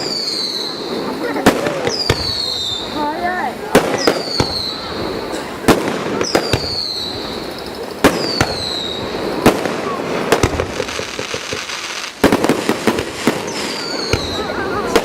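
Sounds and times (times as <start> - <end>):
falling firework whistles: 0.0 - 15.0
fireworks bangs: 0.0 - 15.0.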